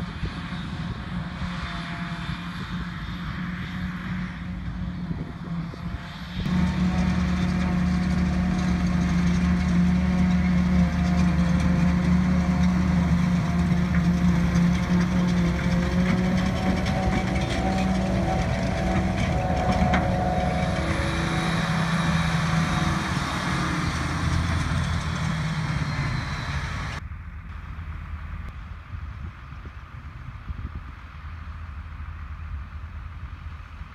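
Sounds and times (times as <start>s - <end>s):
diesel engine drone: 0.0s - 33.9s
machine whine: 6.4s - 27.0s.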